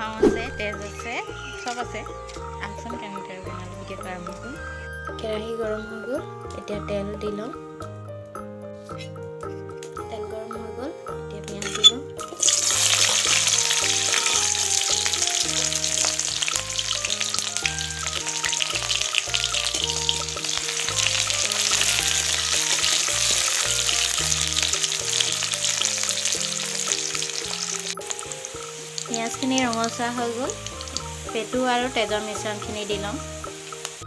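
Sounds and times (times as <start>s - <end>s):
soft background music: 0.0s - 34.0s
onions sizzling in hot oil: 11.6s - 34.0s.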